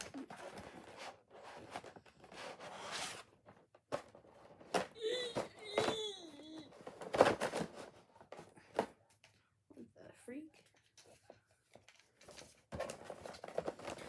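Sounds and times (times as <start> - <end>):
packaging rustling and crinkling: 11.7 - 14.0.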